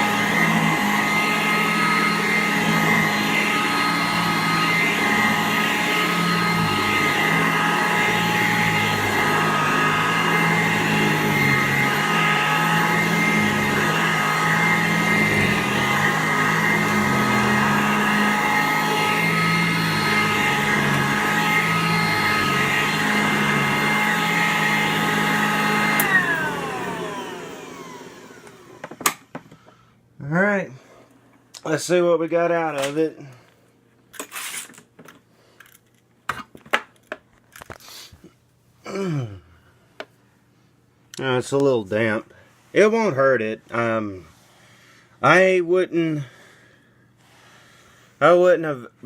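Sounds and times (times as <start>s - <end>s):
vacuum cleaner running on carpet: 0.0s - 29.1s.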